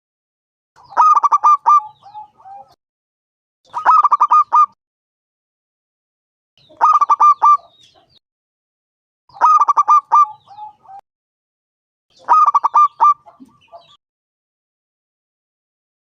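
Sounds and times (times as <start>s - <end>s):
dove staccato cooing: 0.9s - 2.8s, 3.7s - 4.8s, 6.8s - 8.1s, 9.3s - 11.0s, 12.3s - 14.0s.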